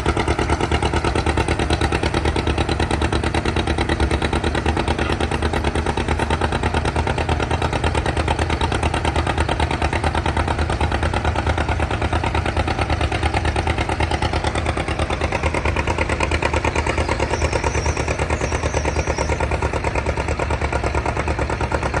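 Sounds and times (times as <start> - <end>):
tractor engine idling: 0.0 - 22.0.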